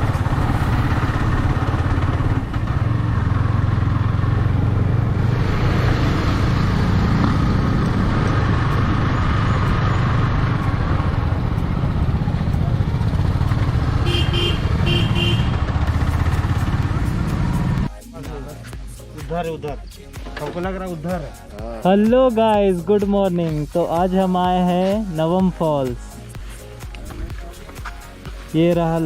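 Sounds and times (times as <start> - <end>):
motorcycle engine running: 0.0 - 17.9
wind and road noise: 0.0 - 17.9, 22.7 - 29.0.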